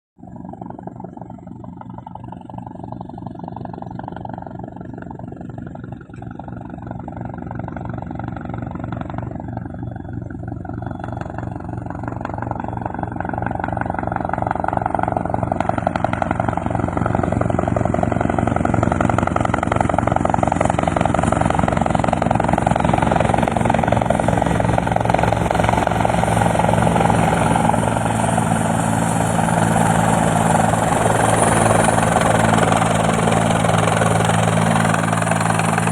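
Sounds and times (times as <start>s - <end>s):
helicopter rotor chop: 0.2s - 35.9s
turbine whine: 0.2s - 35.9s.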